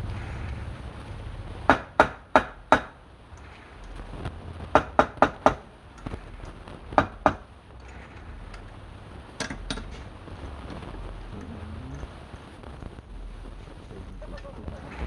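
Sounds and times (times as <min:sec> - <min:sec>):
low steady hum: 0:00.0 - 0:15.0
tool knocking on wood: 0:07.0 - 0:07.4.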